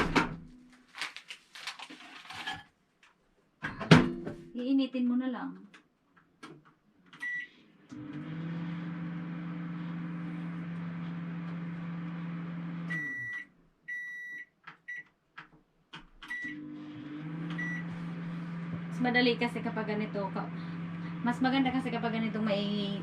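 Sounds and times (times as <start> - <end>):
microwave humming: 7.2 - 14.3, 16.3 - 23.0
microwave beeping: 7.2 - 15.0, 16.2 - 23.0
keypad beeps: 17.6 - 17.8.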